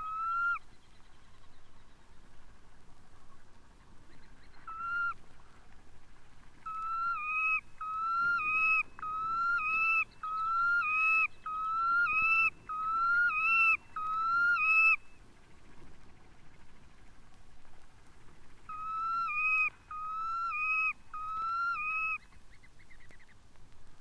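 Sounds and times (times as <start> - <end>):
bird flute-like whistles: 6.7 - 15.1.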